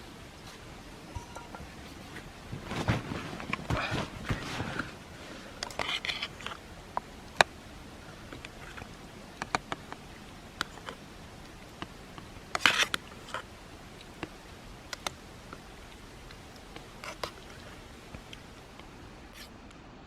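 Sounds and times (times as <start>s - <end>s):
rustling: 0.4s - 6.6s
camp cookware clicking and knocking: 1.1s - 1.8s.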